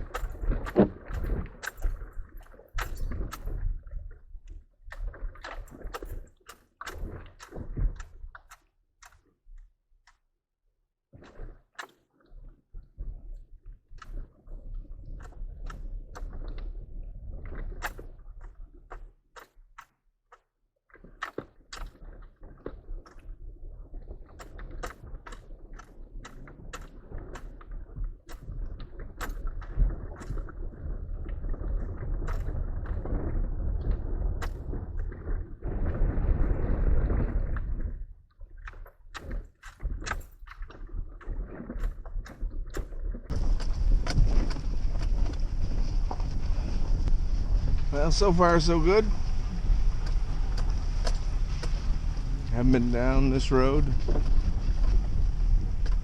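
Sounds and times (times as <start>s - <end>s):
engine and tyre rumble: 43.3s - 48.0s, 49.1s - 53.0s
vehicle driving on dirt road: 43.3s - 56.0s.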